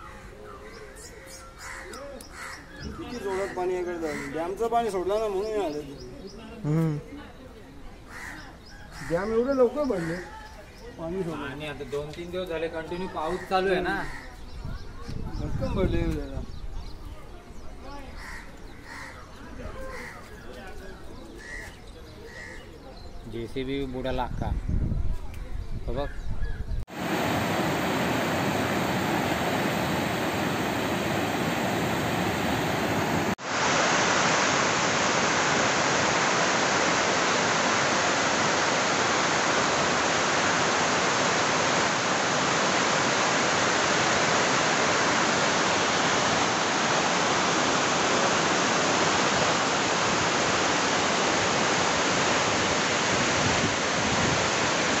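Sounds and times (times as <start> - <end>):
floodwater rushing: 26.9 - 55.0
heavy rain pouring: 26.9 - 55.0.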